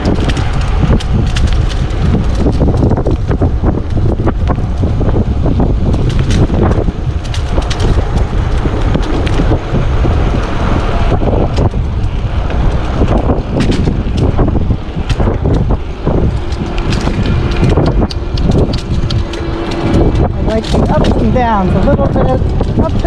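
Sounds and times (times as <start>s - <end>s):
wind buffeting microphone: 0.0s - 23.0s
clicks and rattles: 5.8s - 9.6s, 11.5s - 23.0s.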